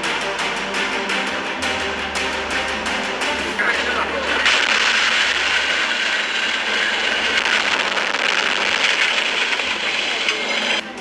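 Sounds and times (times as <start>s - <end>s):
vehicle rushing noise: 3.3s - 10.8s.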